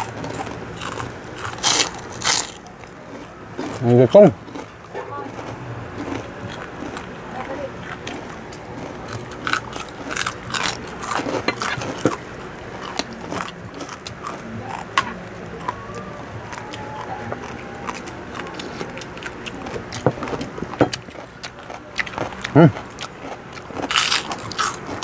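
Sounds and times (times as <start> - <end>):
people chewing crispy food: 0.0 - 25.0.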